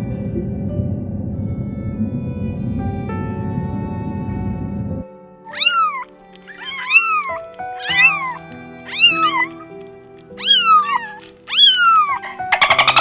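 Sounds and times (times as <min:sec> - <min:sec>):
background music with held notes: 0:00.0 - 0:13.0
cat meowing: 0:05.5 - 0:12.3.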